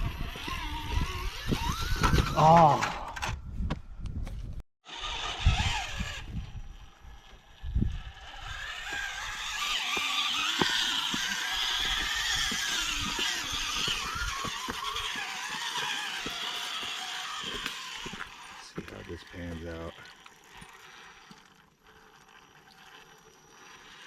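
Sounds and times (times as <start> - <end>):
wind buffeting microphone: 0.0 - 2.6, 3.3 - 9.7, 10.4 - 18.2
electric motor whining: 0.0 - 2.9, 4.9 - 24.0.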